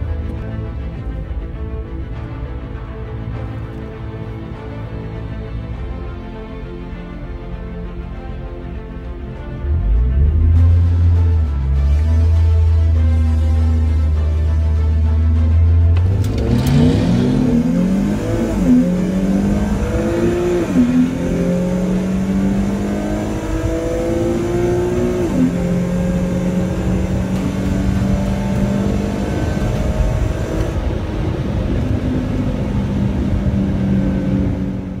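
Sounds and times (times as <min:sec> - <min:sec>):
car engine accelerating: 0:09.6 - 0:35.0.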